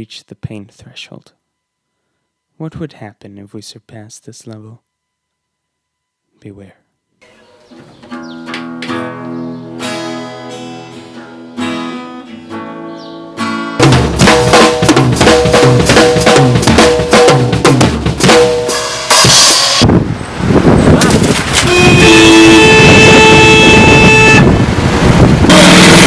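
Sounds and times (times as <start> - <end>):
plucked string notes: 7.2 - 17.9
full band with drums: 13.8 - 19.9, 20.9 - 23.3, 25.5 - 26.0.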